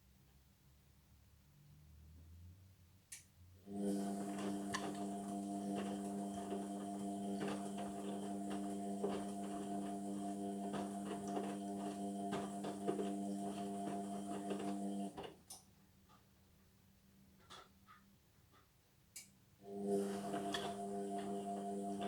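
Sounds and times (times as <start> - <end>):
washing machine humming: 3.6 - 15.2, 19.6 - 22.0
light ticks and knocks: 17.4 - 19.3.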